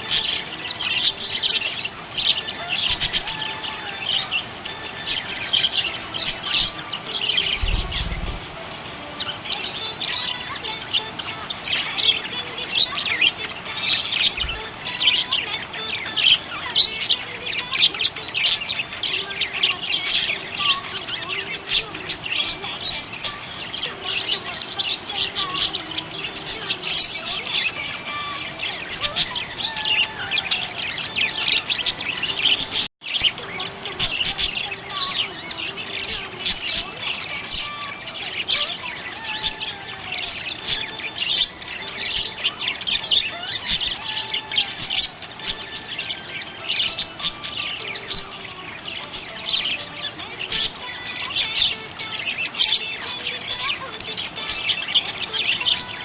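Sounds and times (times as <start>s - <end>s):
parrots chirping and warbling: 0.0s - 56.0s.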